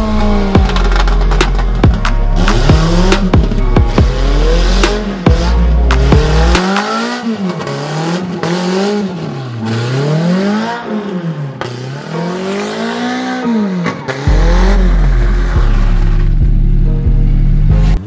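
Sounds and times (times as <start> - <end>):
heavy deep bass: 0.0 - 6.6, 14.3 - 18.0
car engine revving hard: 2.3 - 16.6.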